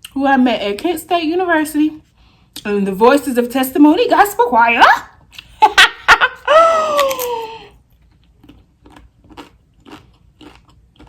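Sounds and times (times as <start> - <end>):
woman's drawn-out vocal exclamation: 6.5 - 7.7
crunchy chewing clicks: 8.0 - 11.0.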